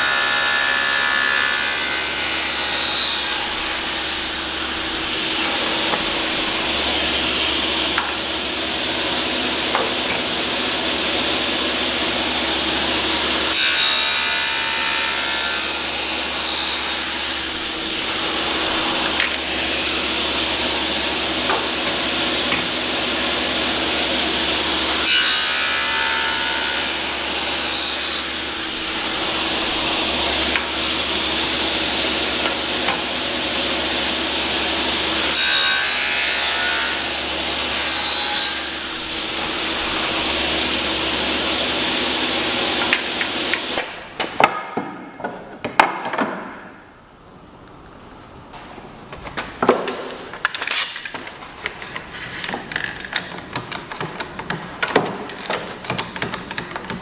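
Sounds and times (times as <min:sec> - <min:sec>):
power saw cutting wood: 0:00.0 - 0:44.1
wood and tools knocking: 0:09.7 - 0:10.4, 0:21.4 - 0:22.8, 0:42.8 - 0:46.7, 0:49.1 - 0:57.0.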